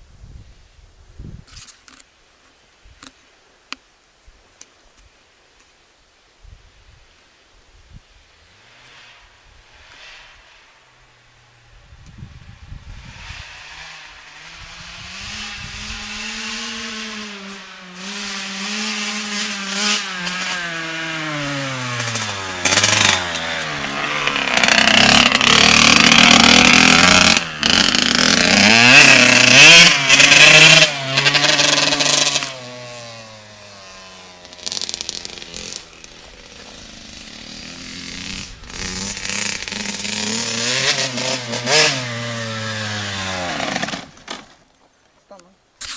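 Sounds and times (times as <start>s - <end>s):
motocross bike engine revving: 8.5s - 11.7s, 12.7s - 44.4s.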